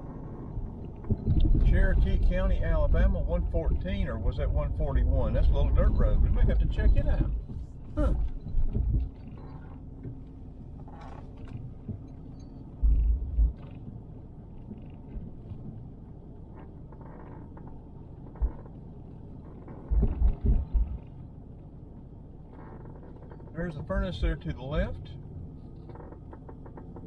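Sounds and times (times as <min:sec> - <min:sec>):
car interior road rumble: 0:00.0 - 0:22.5, 0:23.5 - 0:27.0
short low thumps: 0:12.8 - 0:13.6, 0:19.9 - 0:21.1.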